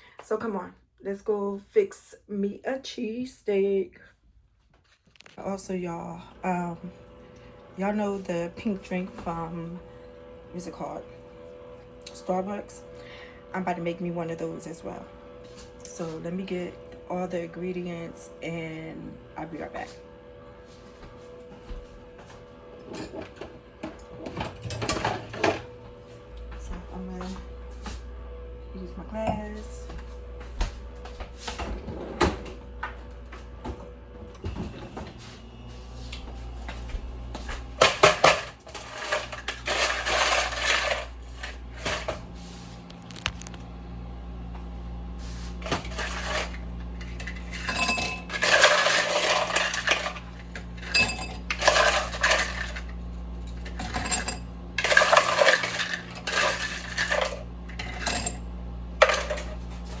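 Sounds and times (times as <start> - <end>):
steady low hum: 12.2 - 60.0
glassware clinking and clattering: 47.5 - 50.2, 50.8 - 52.8, 53.8 - 58.4.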